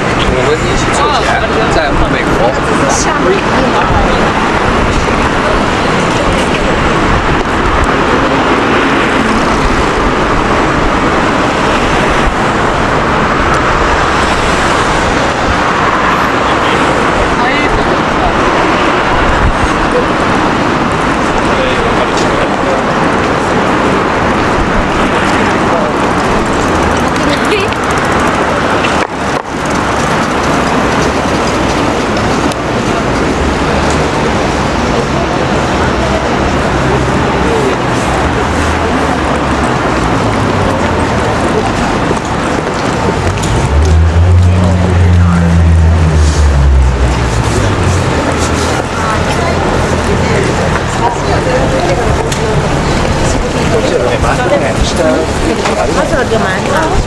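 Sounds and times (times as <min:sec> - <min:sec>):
city street traffic: 0:00.0 - 0:57.0
vehicles passing: 0:00.0 - 0:57.0.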